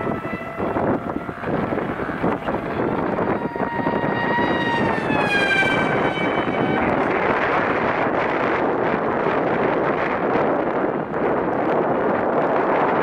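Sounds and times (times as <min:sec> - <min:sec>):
electric motor and propeller whining: 0:00.0 - 0:12.9
wind buffeting microphone: 0:00.0 - 0:13.0.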